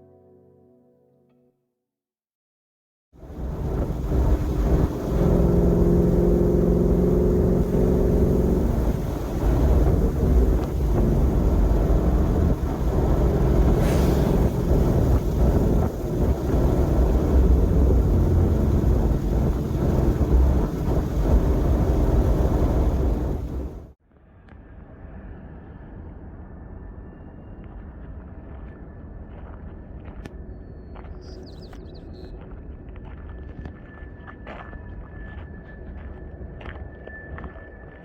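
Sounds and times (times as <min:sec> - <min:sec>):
car engine running: 0:03.2 - 0:23.9
wind rushing past car: 0:03.2 - 0:23.9
road rumble: 0:03.2 - 0:24.0.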